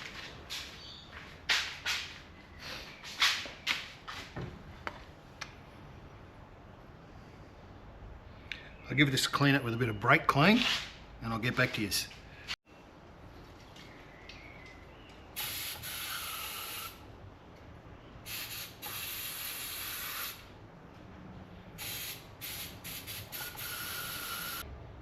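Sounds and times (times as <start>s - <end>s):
aerosol spray hissing: 15.4s - 17.0s, 18.3s - 20.4s, 21.8s - 24.6s.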